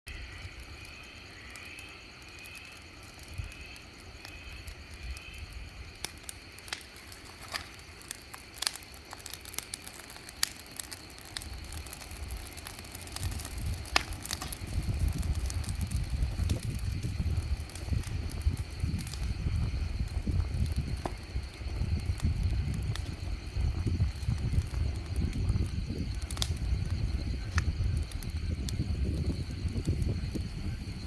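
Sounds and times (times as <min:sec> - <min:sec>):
wood fire crackling and popping: 0:00.1 - 0:31.0.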